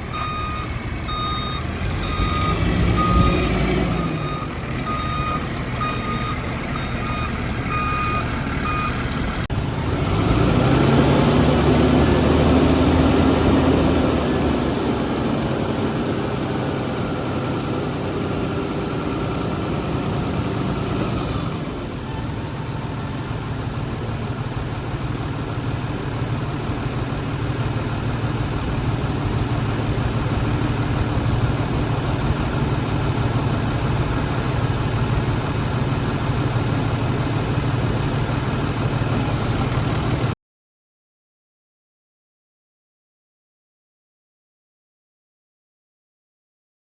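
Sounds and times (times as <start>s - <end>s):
diesel truck engine running: 0.0s - 40.4s
reversing alarm beeping: 0.1s - 9.0s.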